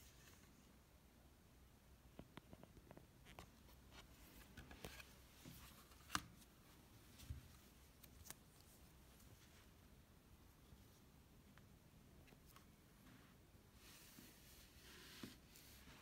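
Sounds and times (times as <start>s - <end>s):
book pages turning: 3.3s - 6.5s, 7.1s - 8.8s.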